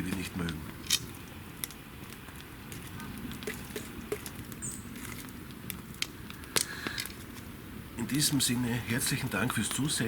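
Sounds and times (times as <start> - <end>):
fire pops and snaps: 0.0 - 8.6, 9.4 - 10.0
campfire crackling: 0.0 - 10.0.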